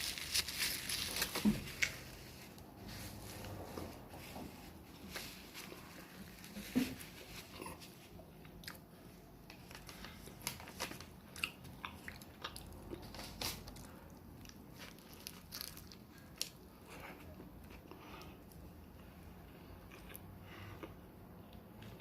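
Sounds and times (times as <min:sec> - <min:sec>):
person chewing a sandwich: 0:07.2 - 0:22.0.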